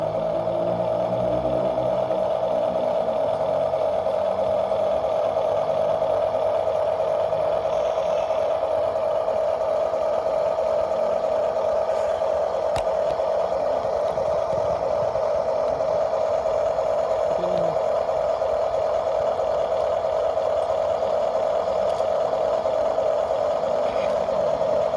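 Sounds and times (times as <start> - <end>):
low hum: 0.0 - 24.9
small motor whining: 5.9 - 9.3.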